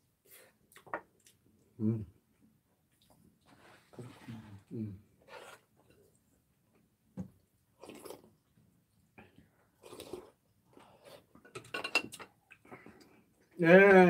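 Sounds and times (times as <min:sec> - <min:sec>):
person chewing with mouth smacks: 0:07.8 - 0:08.4.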